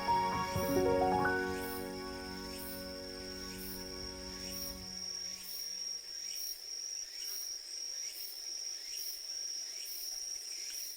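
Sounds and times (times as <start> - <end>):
background music: 0.0 - 5.3
insect high-pitched trill: 0.0 - 10.9
insect pulsing chirp: 0.0 - 10.9.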